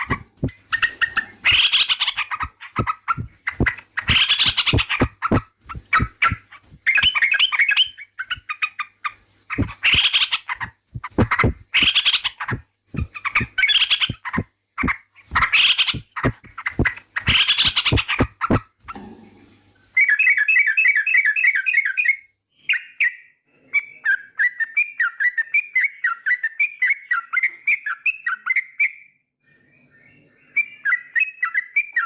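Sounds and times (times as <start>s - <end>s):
bulbul chattering song: 0.0s - 18.6s.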